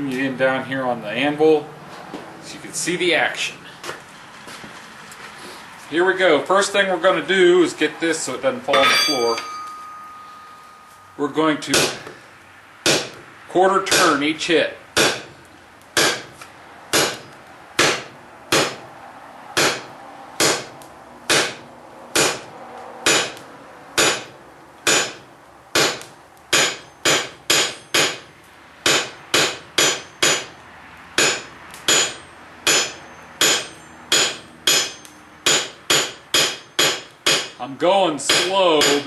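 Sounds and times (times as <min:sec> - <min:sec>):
hammer striking steel on anvil: 0:08.7 - 0:12.2, 0:12.8 - 0:13.2, 0:13.9 - 0:14.2, 0:15.0 - 0:15.3, 0:16.0 - 0:16.3, 0:16.9 - 0:18.8, 0:19.6 - 0:23.4, 0:24.0 - 0:25.2, 0:25.8 - 0:30.6, 0:31.2 - 0:37.6, 0:38.2 - 0:39.0
faint high ring: 0:08.8 - 0:11.4.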